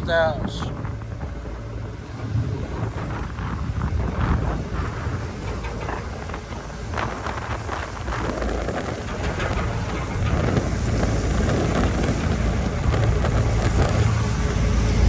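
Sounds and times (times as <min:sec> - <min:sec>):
ship engines droning: 0:00.0 - 0:15.0
wind buffeting microphone: 0:00.0 - 0:15.0
rushing noise: 0:14.1 - 0:15.0.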